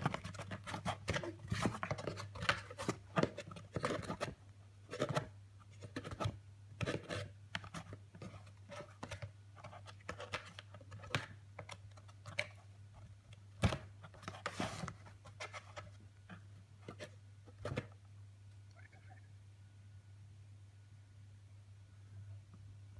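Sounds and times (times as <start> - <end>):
scratching and tapping on a box: 0.0 - 18.0.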